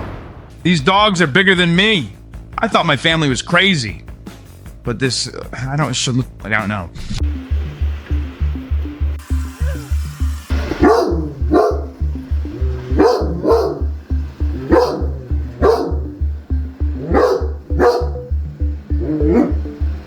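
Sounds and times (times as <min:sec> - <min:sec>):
music with thumping beat: 0:00.5 - 0:05.0, 0:06.2 - 0:20.0
dogs barking deep barks: 0:10.6 - 0:19.8.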